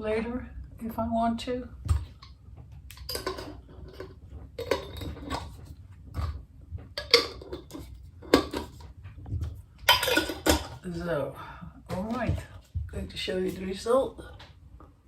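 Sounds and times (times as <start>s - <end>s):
painting tools clinking and clattering: 3.0s - 10.9s.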